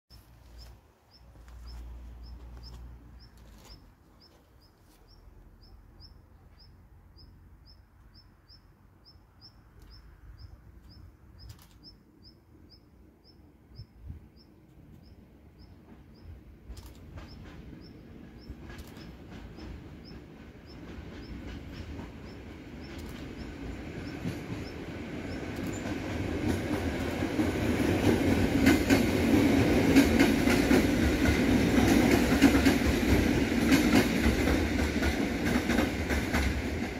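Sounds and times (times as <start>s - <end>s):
small bird chirping: 0.1s - 25.9s
electric train rumble: 0.1s - 36.9s.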